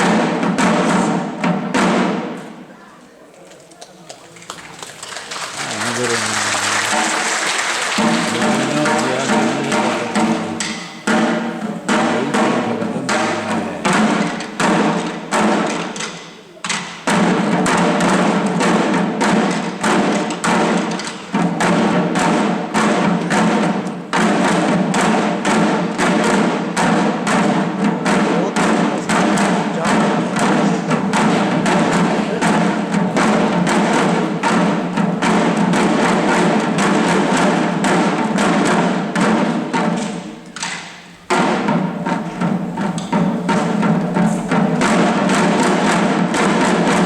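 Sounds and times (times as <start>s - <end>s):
drums beaten in quick rhythm: 0.0s - 2.4s, 5.5s - 47.0s
held singing voices: 5.6s - 14.4s.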